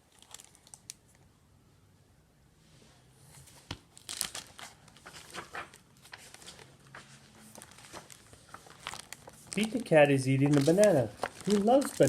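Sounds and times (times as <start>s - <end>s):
book pages rustling: 3.3s - 12.0s.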